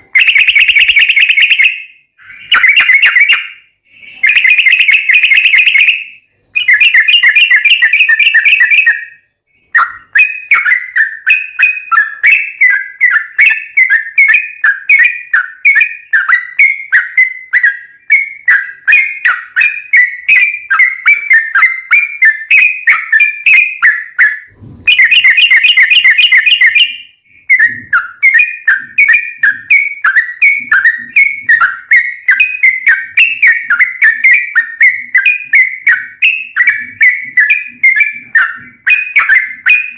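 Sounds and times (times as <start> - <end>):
bird fast trills: 0.1 - 39.9
bird chattering chirps: 6.6 - 39.9.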